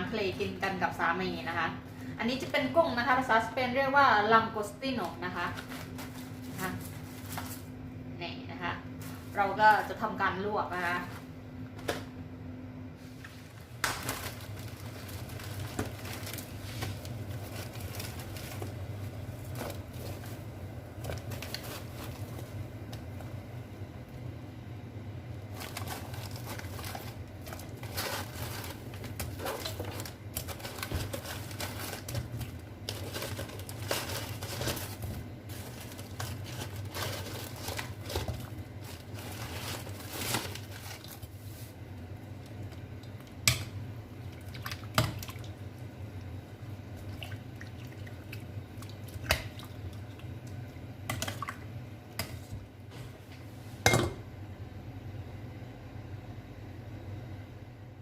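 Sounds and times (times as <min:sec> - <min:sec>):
steady low hum: 0:00.0 - 0:58.0
rustling and crinkling: 0:05.0 - 0:07.8, 0:09.0 - 0:10.1, 0:13.0 - 0:23.3, 0:25.5 - 0:42.8
pots and utensils clinking: 0:53.8 - 0:54.2.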